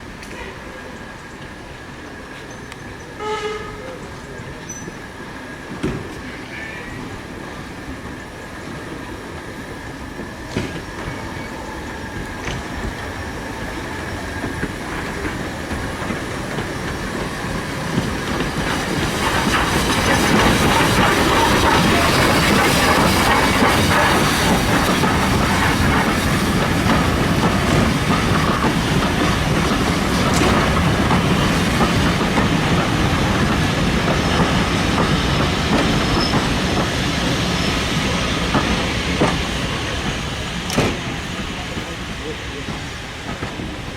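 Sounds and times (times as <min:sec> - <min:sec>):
steam train running past: 0:00.0 - 0:43.9
wheels clattering over rail joints: 0:14.4 - 0:37.4.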